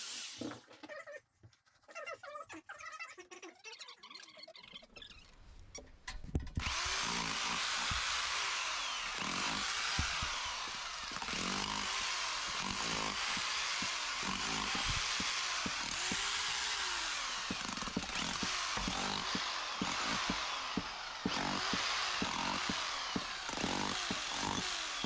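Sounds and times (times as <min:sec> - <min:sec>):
rotary hammer drill boring into stone: 0:06.6 - 0:25.0
knocks: 0:17.5 - 0:23.3.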